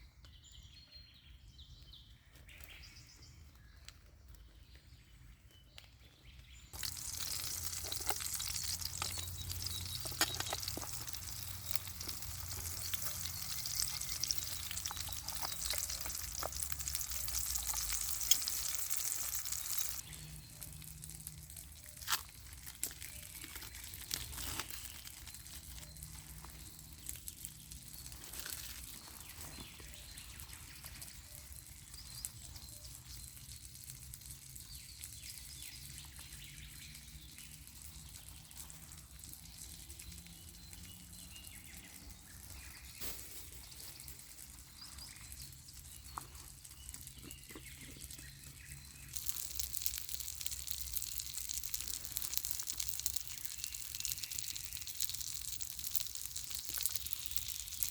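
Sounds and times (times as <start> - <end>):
faint bird chirps: 0.0 - 18.8
small clicks and crackles: 3.4 - 57.9.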